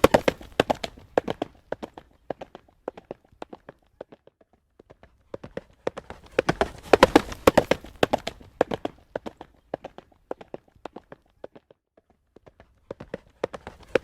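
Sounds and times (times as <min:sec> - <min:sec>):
horse hooves clip-clopping on road: 0:00.0 - 0:11.7, 0:12.3 - 0:14.0.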